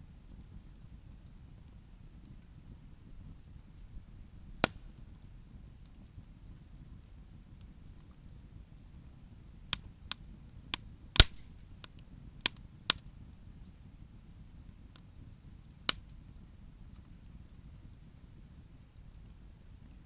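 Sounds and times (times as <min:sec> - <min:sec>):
burning wood popping: 0:00.0 - 0:20.0
low steady background: 0:00.0 - 0:20.0.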